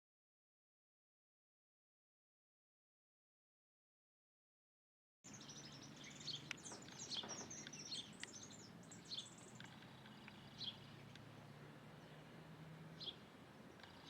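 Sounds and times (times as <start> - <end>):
small birds chirping: 5.3 - 14.0.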